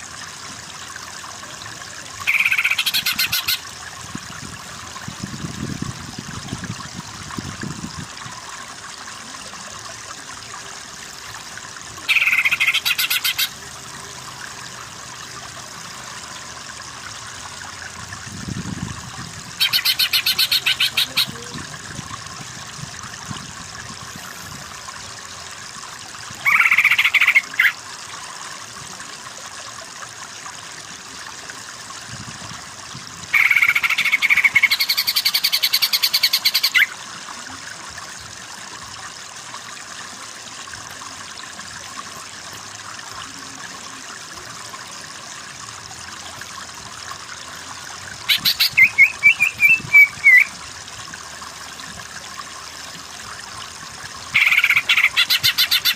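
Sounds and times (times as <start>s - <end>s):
bird singing: 48.3s - 50.5s.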